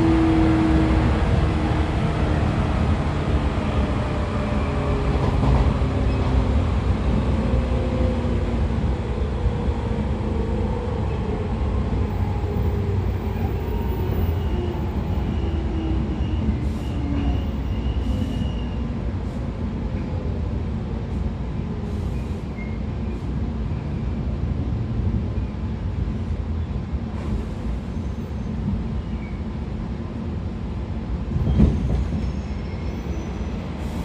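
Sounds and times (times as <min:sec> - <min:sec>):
train bogies rumbling on rails: 0:00.0 - 0:20.2, 0:31.2 - 0:34.0.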